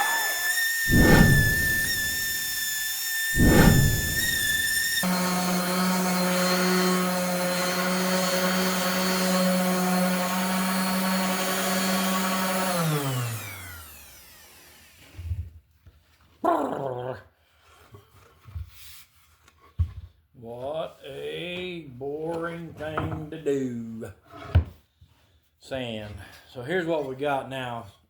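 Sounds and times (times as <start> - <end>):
electric sander on wood: 0.0 - 15.4.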